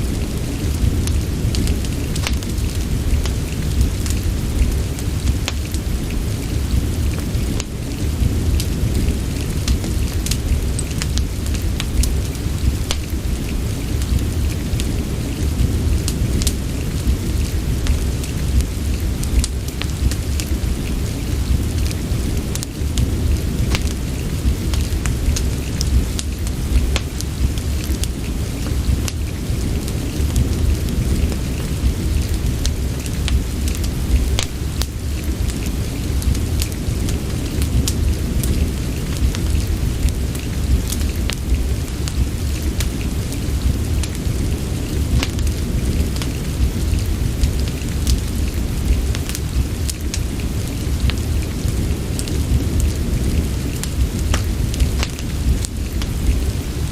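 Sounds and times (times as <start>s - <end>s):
deep low rumble: 0.0s - 56.9s
fire crackling: 0.0s - 56.9s
rain hiss: 0.0s - 56.9s.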